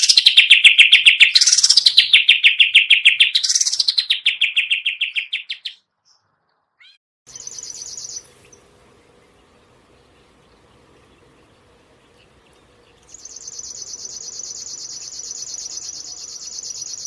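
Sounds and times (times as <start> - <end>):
songbird trilling: 0.0 - 6.2, 6.8 - 17.0
high chirping: 0.0 - 8.7, 10.1 - 17.0
faint hum: 7.3 - 17.0.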